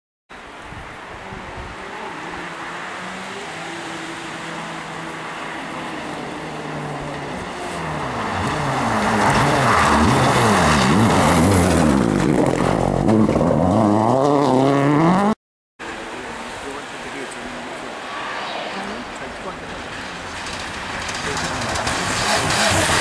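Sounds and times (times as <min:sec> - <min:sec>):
rally car engine revving: 0:01.7 - 0:15.4, 0:18.6 - 0:23.0.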